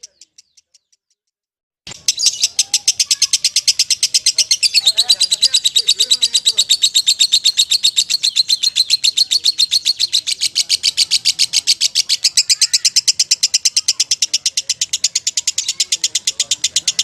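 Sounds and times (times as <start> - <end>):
lovebird trilling chatter: 1.9 - 17.0.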